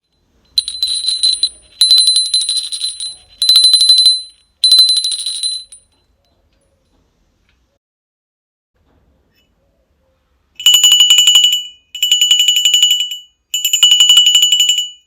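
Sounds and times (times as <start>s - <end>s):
cowbell shaken: 0.5s - 5.8s, 10.6s - 15.0s.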